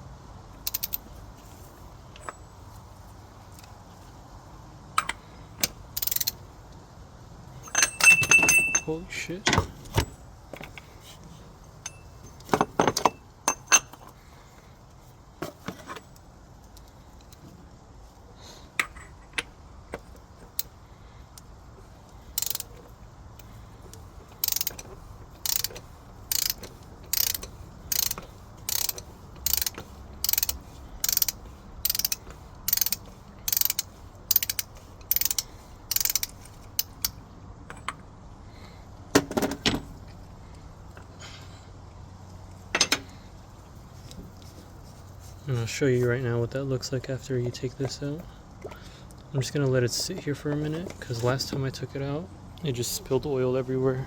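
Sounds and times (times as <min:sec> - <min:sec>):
ratchet wrench clicking: 0:00.6 - 0:01.0, 0:05.0 - 0:06.4, 0:22.3 - 0:37.2
metal clanks: 0:07.6 - 0:10.9, 0:11.8 - 0:14.1, 0:42.7 - 0:43.1.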